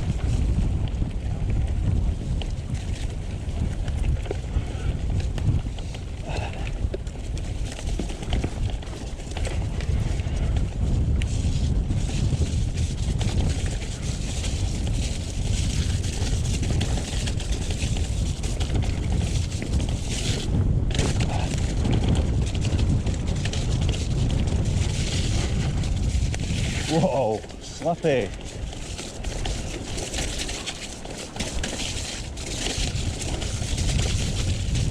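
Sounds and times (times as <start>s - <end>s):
bike rattling clicks and knocks: 0.0s - 34.9s
wind rushing over microphone: 0.0s - 34.9s
tyres rolling through mud: 11.4s - 34.9s.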